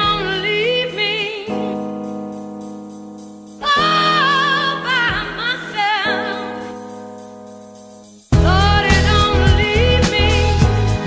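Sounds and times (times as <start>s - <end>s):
high voice singing with vibrato: 0.0s - 1.9s, 3.6s - 7.0s, 8.4s - 11.0s.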